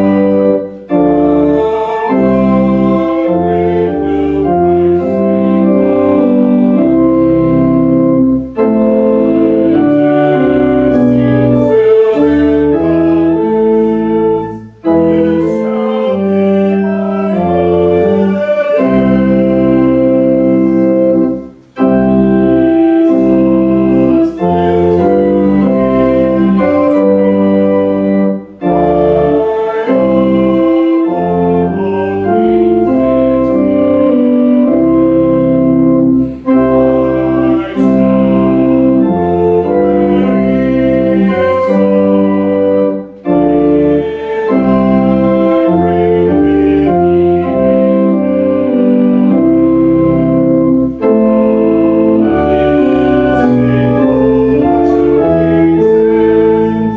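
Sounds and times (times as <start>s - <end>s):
church organ playing a hymn: 0.0s - 56.9s.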